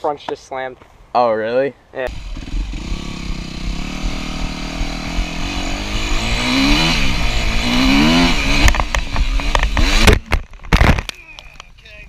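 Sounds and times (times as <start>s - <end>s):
dirt bike engine revving: 2.1s - 10.5s.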